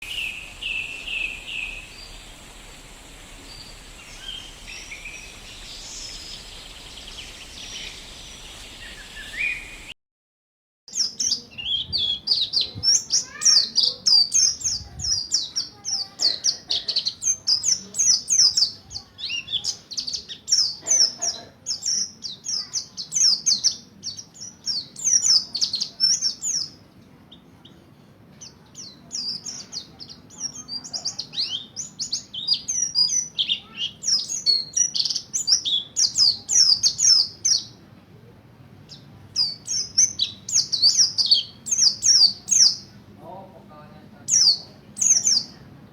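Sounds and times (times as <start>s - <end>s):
bird singing high chirps and trills: 0.0s - 9.9s, 10.9s - 37.8s, 38.8s - 43.0s, 44.3s - 45.6s.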